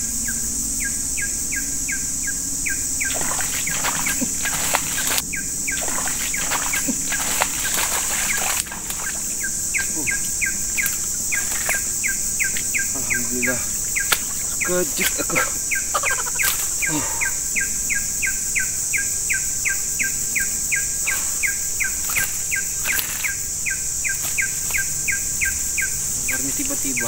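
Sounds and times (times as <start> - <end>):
insects buzzing: 0.0 - 27.0
irregular clicks and rustles: 22.0 - 23.4, 24.1 - 24.9.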